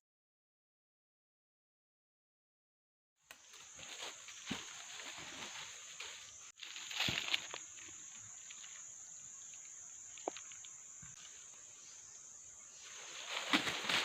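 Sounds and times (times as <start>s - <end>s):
high-pitched insect drone: 3.4s - 14.0s.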